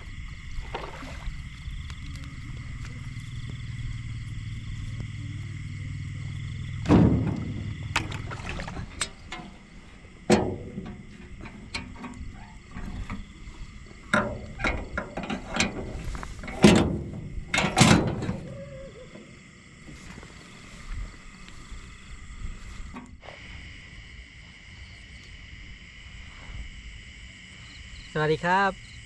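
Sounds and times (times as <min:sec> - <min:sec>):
wooden knocks and clunks: 0:06.8 - 0:09.6
light clicks and rattles: 0:07.2 - 0:18.4.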